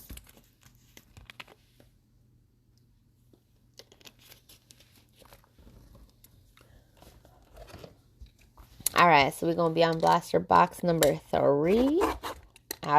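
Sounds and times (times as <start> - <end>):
cards and wrappers rustling: 0.0 - 1.9, 3.8 - 8.9.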